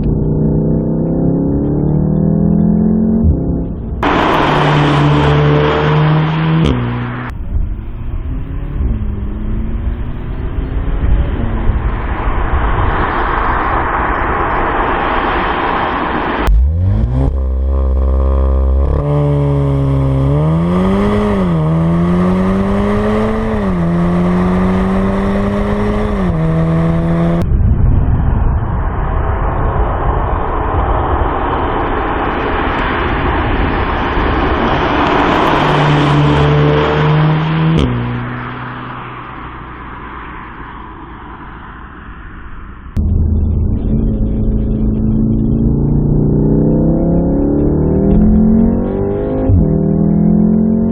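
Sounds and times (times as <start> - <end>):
roar of car at speed: 0.0 - 12.2, 16.3 - 27.4, 34.6 - 40.1, 43.0 - 50.9
car engine accelerating hard: 0.0 - 27.4, 33.8 - 41.6, 43.0 - 50.9.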